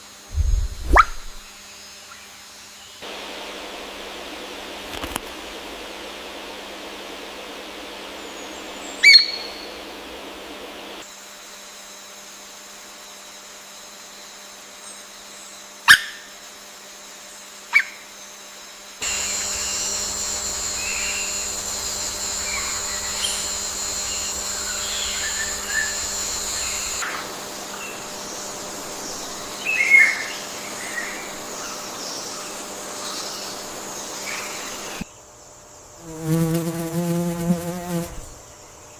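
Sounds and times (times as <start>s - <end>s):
short chirps: 0.3s - 1.5s
forest ambience: 0.3s - 11.0s, 17.2s - 38.9s
wild birds calling: 6.8s - 11.0s, 19.0s - 35.0s.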